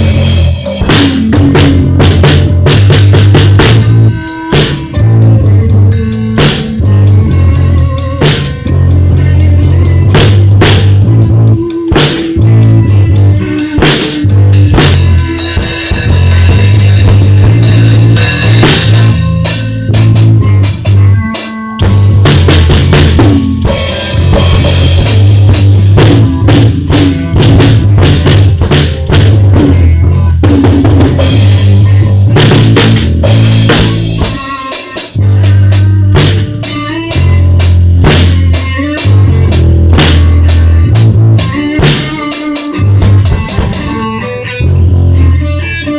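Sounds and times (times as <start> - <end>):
bass drum and snare hits: 0.0 - 5.0, 9.4 - 11.3, 13.8 - 21.1, 21.8 - 34.5, 36.1 - 42.3
rock band playing loudly: 0.0 - 45.9.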